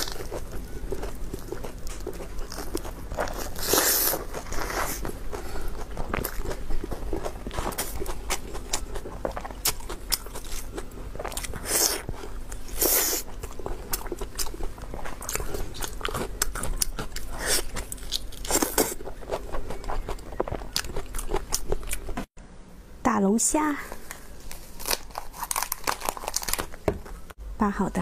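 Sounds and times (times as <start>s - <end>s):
wet chewing: 0.0s - 22.3s.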